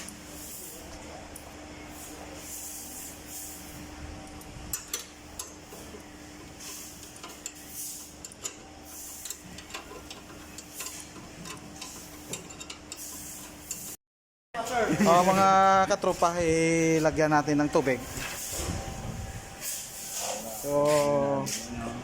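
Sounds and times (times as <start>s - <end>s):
steady low hum: 14.8s - 22.0s.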